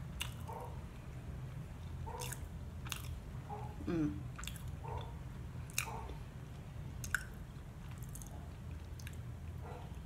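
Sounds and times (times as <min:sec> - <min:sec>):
person chewing: 0:00.0 - 0:00.5, 0:01.8 - 0:03.2, 0:04.2 - 0:10.0
wet mouth clicks: 0:07.0 - 0:08.3.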